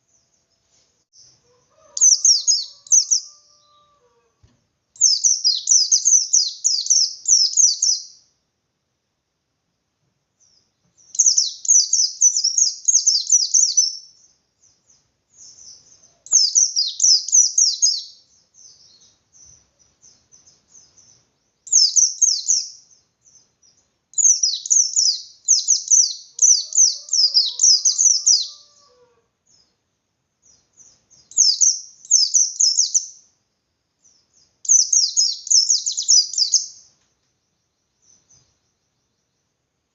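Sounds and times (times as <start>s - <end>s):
bird high-pitched chattering: 2.0s - 3.3s, 24.2s - 28.7s.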